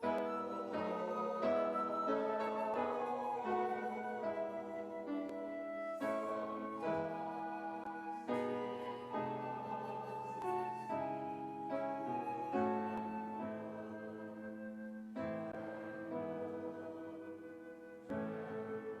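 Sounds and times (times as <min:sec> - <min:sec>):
slow keyboard chords: 0:00.0 - 0:16.3.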